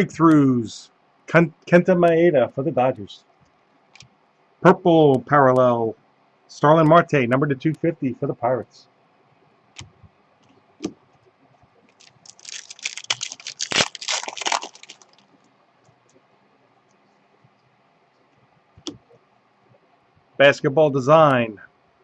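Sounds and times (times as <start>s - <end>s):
foil wrapper crinkling: 11.9s - 15.5s.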